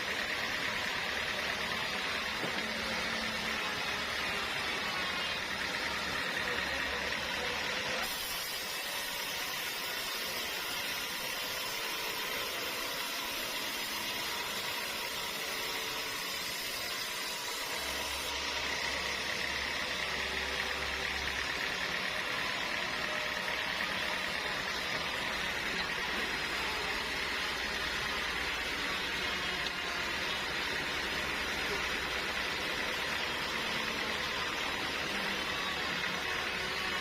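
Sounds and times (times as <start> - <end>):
sawmill machinery humming: 0.0 - 37.0.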